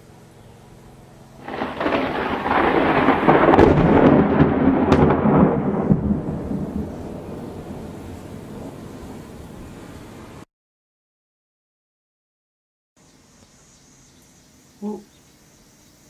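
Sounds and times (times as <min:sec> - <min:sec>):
thunder rumbling and crackling: 0:01.4 - 0:10.2.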